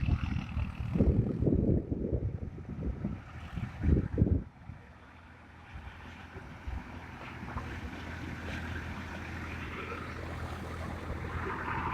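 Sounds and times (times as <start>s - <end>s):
wind on microphone: 0.0s - 4.9s
tractor diesel engine running: 0.0s - 11.9s.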